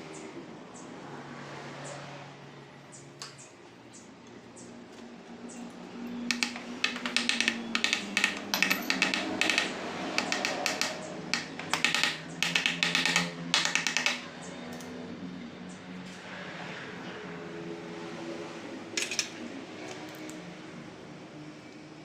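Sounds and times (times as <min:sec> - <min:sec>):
rapid clicking of hand tool: 0:06.3 - 0:14.3.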